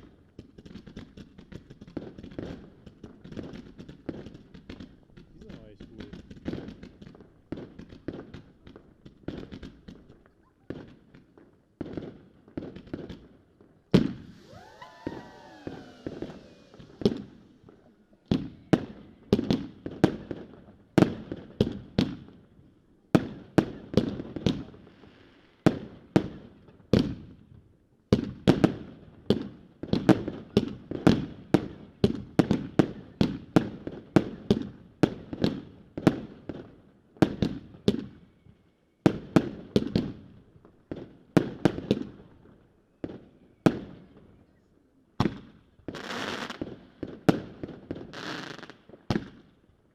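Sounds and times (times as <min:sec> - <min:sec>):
fireworks banging: 0:13.9 - 0:22.2
firework whistle sliding down: 0:14.0 - 0:19.6.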